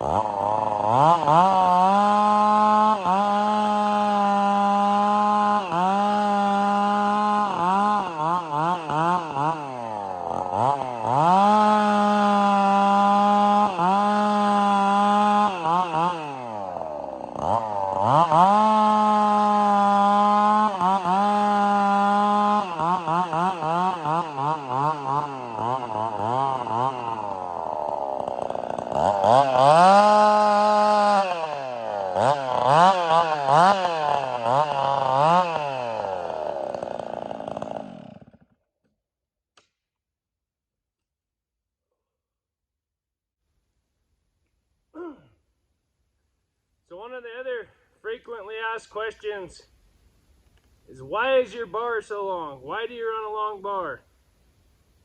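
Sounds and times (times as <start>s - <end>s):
chainsaw cutting firewood: 0.0s - 38.9s, 50.4s - 55.0s.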